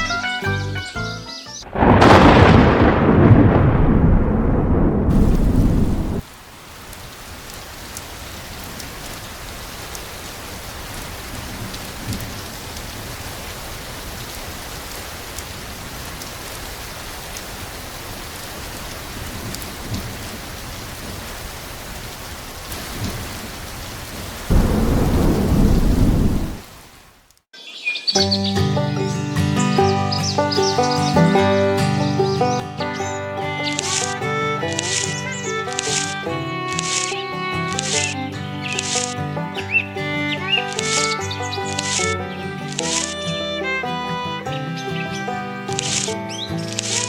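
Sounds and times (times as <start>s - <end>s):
steady rain: 1.6s - 27.5s, 30.3s - 47.0s
thunder rumbling: 1.7s - 27.2s.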